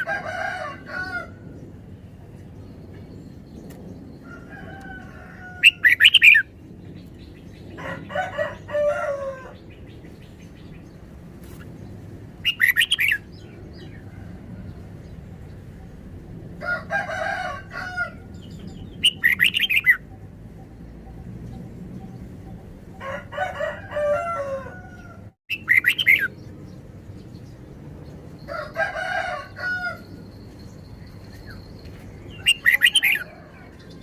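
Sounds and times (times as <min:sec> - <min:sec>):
bird singing bright phrases: 0:09.6 - 0:14.0, 0:18.3 - 0:23.0, 0:25.5 - 0:27.6, 0:30.3 - 0:34.0.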